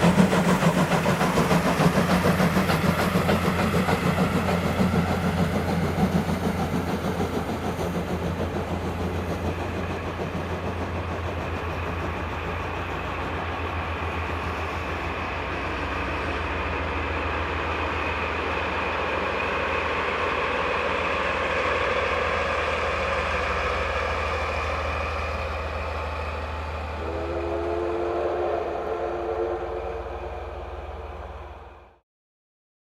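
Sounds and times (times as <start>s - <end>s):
steam locomotive exhaust beats: 0.0s - 32.0s
train whistle: 26.8s - 32.0s.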